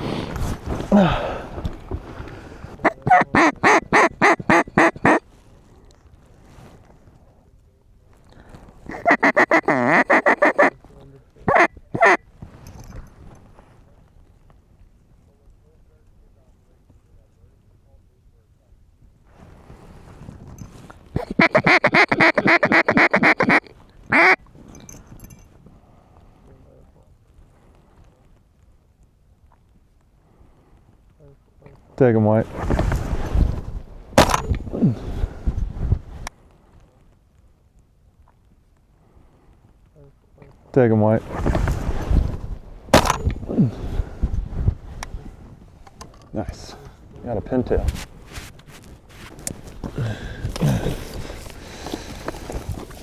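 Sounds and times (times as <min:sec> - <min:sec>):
duck call quacks: 0:02.8 - 0:05.2, 0:08.9 - 0:10.8, 0:11.5 - 0:12.2, 0:21.2 - 0:24.4.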